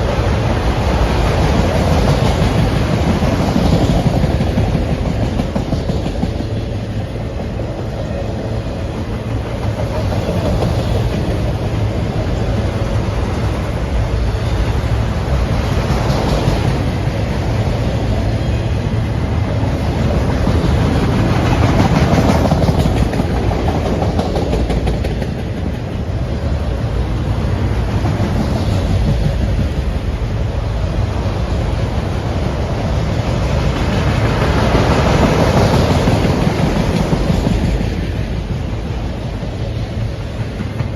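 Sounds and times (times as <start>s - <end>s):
freight train wheels rumbling and clicking: 0.0s - 40.9s.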